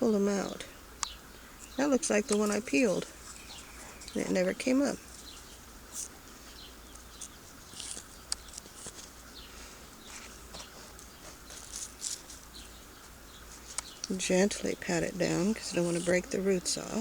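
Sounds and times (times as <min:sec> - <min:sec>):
hands scraping potting soil: 0:06.9 - 0:09.2, 0:10.0 - 0:12.6, 0:13.5 - 0:17.0.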